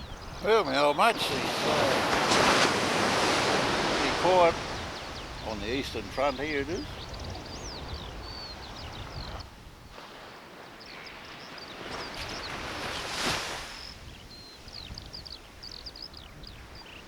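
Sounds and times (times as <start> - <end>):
small birds chirping: 0.0 - 9.5, 10.6 - 17.0
wave breaking: 0.4 - 6.9.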